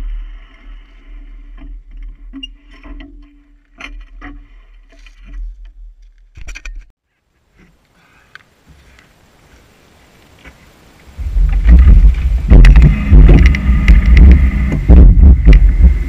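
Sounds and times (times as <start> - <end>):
motorcycle engine rumble: 8.5 - 16.0
knocks and rattles: 11.2 - 16.0.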